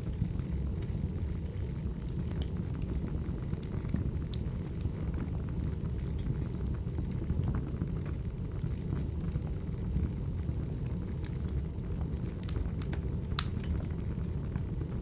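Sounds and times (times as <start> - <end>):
fire low rumble: 0.0 - 15.0
firewood crackling and popping: 0.0 - 15.0.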